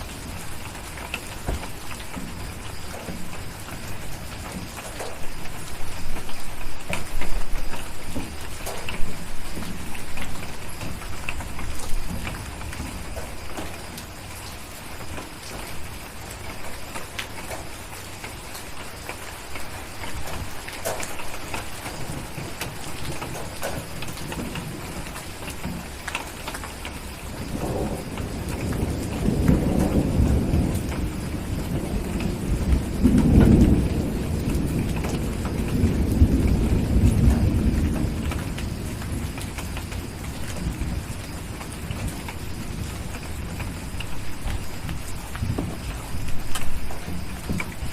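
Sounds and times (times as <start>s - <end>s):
steady rain: 0.0s - 47.9s
thunder rolling: 27.2s - 47.9s.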